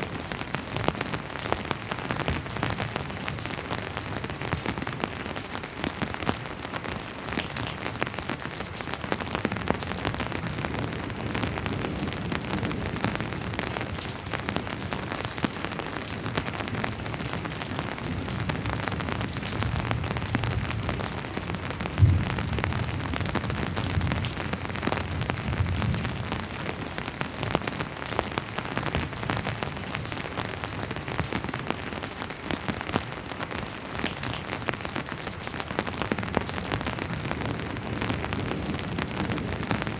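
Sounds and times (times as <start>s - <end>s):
rain pattering: 0.0s - 39.9s
distant thunder rumbling: 21.8s - 24.6s.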